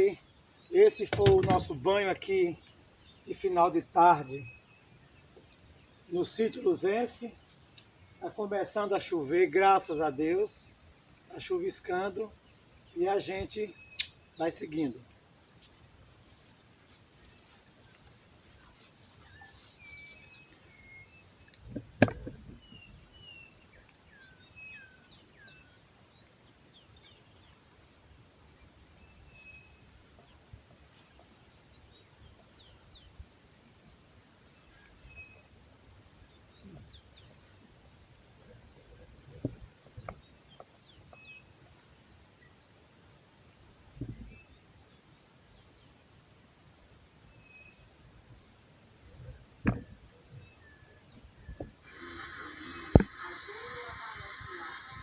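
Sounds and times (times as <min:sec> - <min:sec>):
crickets trilling: 0:00.0 - 0:55.0
knocks: 0:01.1 - 0:01.7, 0:21.7 - 0:22.6, 0:49.6 - 0:49.9.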